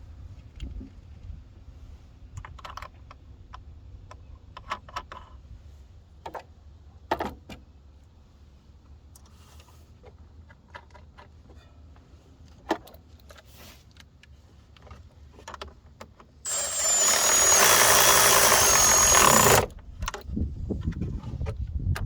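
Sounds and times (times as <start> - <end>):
power ratchet motor whine: 16.5 - 19.7.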